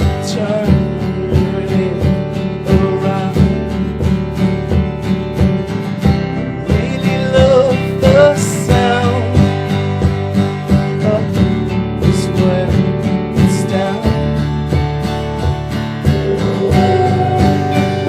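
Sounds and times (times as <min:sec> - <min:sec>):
strummed acoustic guitar: 0:00.0 - 0:18.0
wavering melody line: 0:15.0 - 0:18.0.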